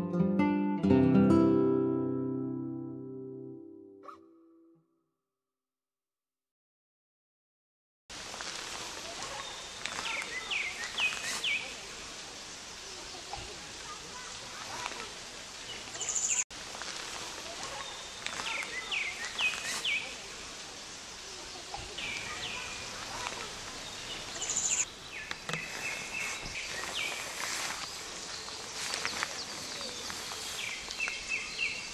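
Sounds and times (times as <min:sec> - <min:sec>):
steady outdoor hiss: 0:08.1 - 0:31.9
small birds chirping: 0:09.0 - 0:16.5, 0:17.3 - 0:31.9
high bird trill: 0:23.8 - 0:31.9.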